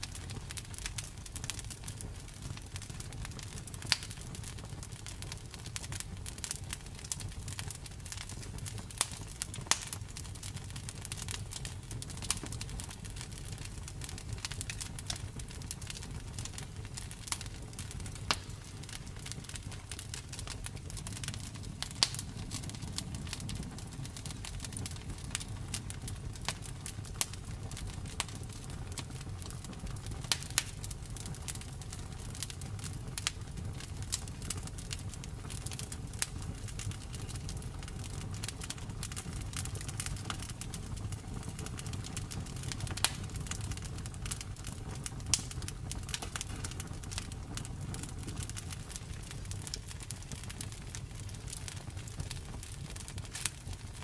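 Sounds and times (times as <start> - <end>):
low rumble of flames: 0.0 - 54.0
wood fire crackling and popping: 0.0 - 54.0.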